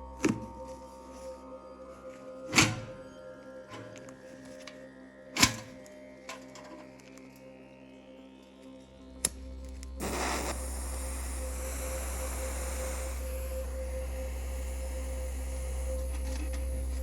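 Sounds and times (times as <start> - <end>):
machine humming and whining: 2.5 - 17.0
hissing rush: 10.0 - 17.0.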